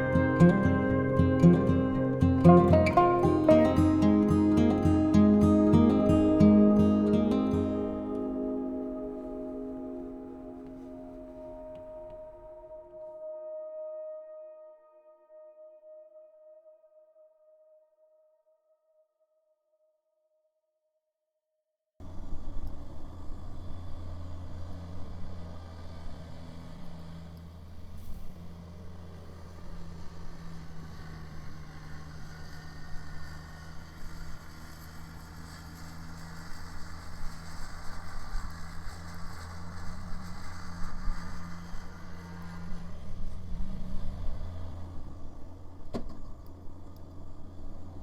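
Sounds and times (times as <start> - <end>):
snow blower working: 0.0 - 12.4, 22.0 - 48.0
diesel tractor engine droning: 0.0 - 13.1, 22.0 - 48.0.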